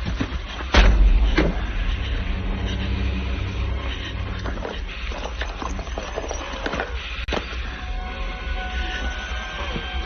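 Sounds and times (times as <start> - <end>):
low rumble: 0.7 - 8.0.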